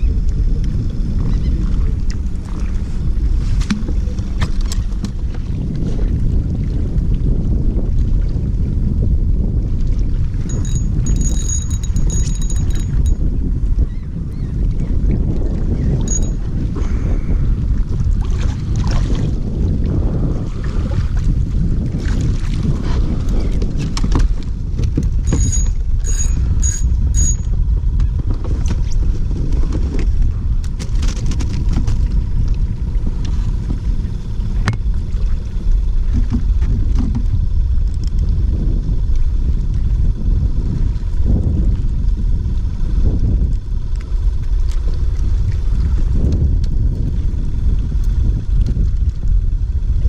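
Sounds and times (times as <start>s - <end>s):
wind buffeting microphone: 0.0s - 50.0s
light water noise: 0.2s - 7.3s, 31.5s - 38.4s
short high beeps: 10.5s - 13.2s, 16.0s - 16.4s, 25.3s - 27.5s.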